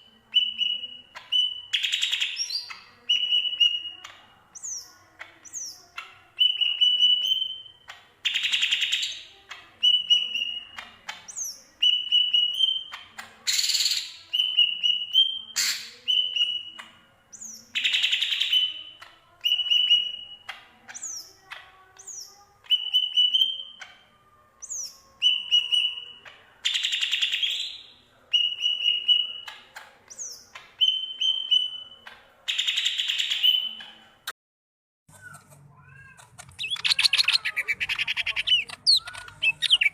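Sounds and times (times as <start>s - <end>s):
bird singing whistled phrases: 0.3s - 3.9s, 22.1s - 23.8s, 24.6s - 26.2s, 26.8s - 32.0s
bird scratchy chatter: 35.1s - 39.9s.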